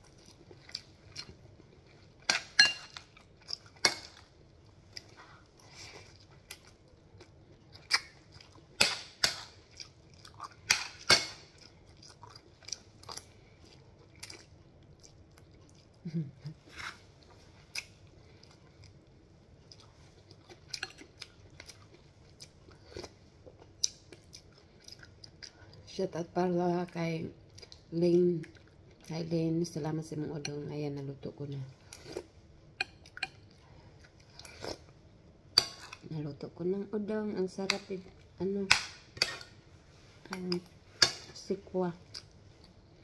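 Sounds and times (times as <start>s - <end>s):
chewing and mouth smacks: 0.0s - 2.3s, 3.0s - 25.8s.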